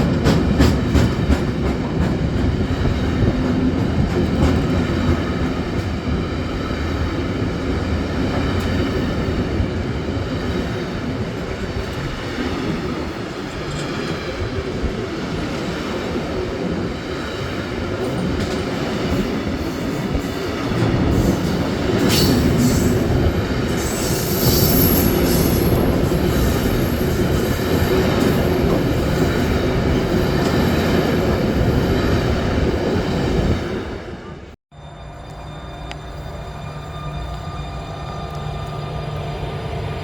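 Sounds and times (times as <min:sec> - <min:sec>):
train wheels rumbling on rails: 0:00.0 - 0:34.6
high wheel squeal: 0:23.7 - 0:27.6.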